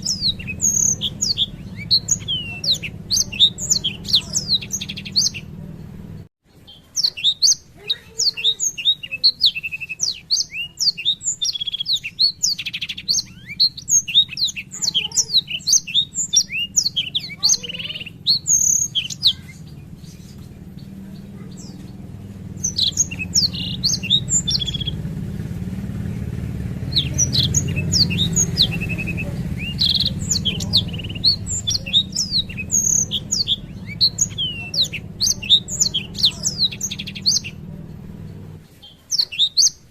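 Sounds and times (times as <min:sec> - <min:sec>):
low hum: 0:00.0 - 0:06.3, 0:17.9 - 0:38.7
canary singing trills: 0:00.0 - 0:39.9.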